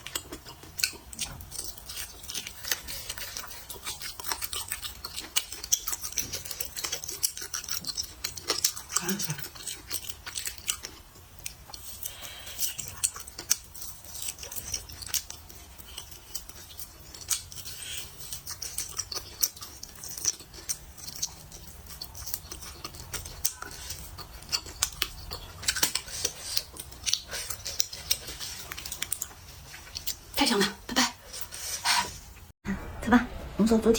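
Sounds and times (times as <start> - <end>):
chewing clicks and smacks: 0.0 - 30.3.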